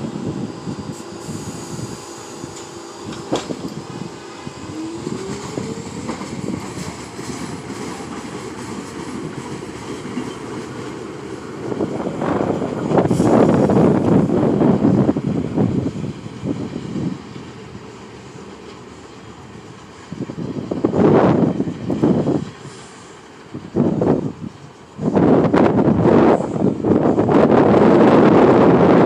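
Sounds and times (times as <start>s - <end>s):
rising motor whine: 0.0s - 7.6s
subway train rumbling on rails: 0.0s - 29.0s.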